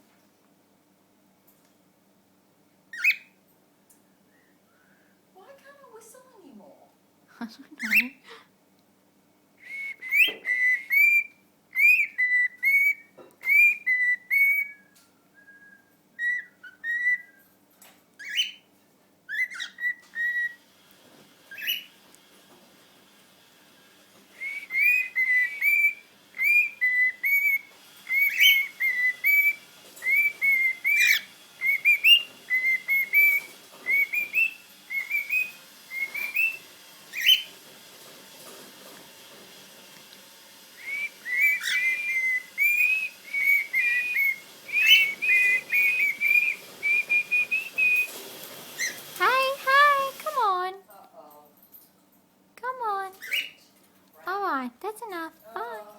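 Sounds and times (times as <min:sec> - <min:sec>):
cockatiel whistling song: 0:02.9 - 0:03.4, 0:07.8 - 0:08.2, 0:09.6 - 0:17.5, 0:18.2 - 0:18.7, 0:19.3 - 0:20.6, 0:21.5 - 0:22.0, 0:24.3 - 0:37.6, 0:40.5 - 0:50.2, 0:53.2 - 0:53.6.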